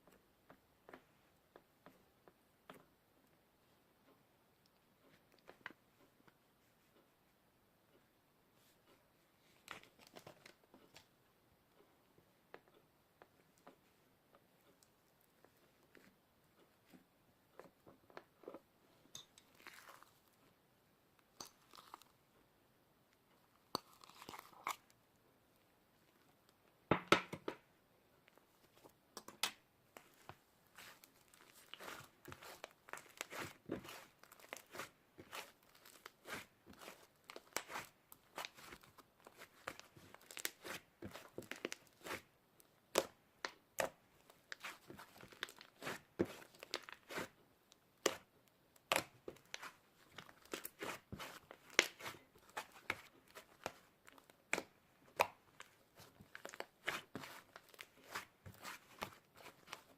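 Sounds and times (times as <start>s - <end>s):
slime crackling and snapping: 30.8s - 42.2s.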